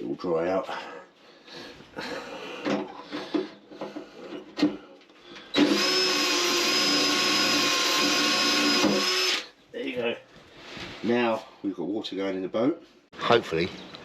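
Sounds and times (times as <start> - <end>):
cordless drill whining: 5.5 - 9.5.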